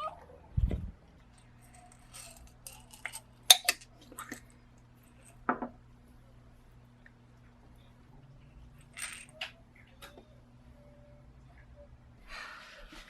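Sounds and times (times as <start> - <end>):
faint low hum: 0.0 - 13.0
small hard objects clinking: 1.3 - 4.5, 8.8 - 9.6.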